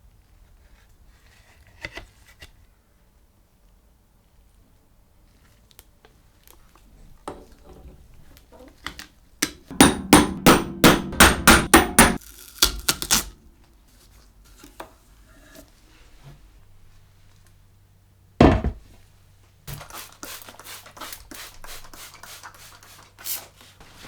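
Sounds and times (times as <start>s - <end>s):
hammer striking: 9.4s - 12.2s.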